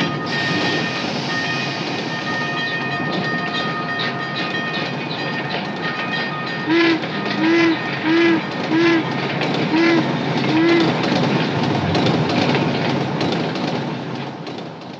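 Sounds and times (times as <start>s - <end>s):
toy train running on track: 0.0s - 11.3s
toy train whistle toots: 6.7s - 9.1s, 9.7s - 11.0s.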